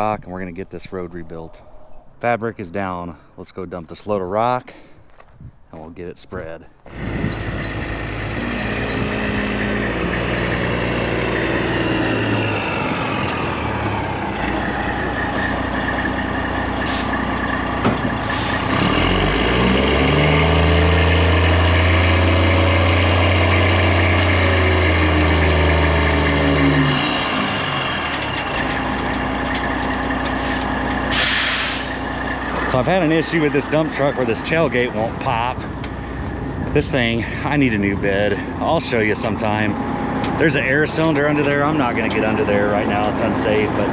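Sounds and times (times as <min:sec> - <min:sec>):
diesel truck engine revving: 0:00.0 - 0:43.9
air hiss bursts: 0:30.4 - 0:32.0.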